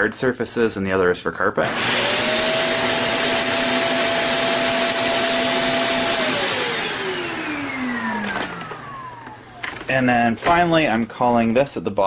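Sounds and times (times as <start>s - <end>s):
vacuum cleaner motor whining: 1.6s - 10.6s.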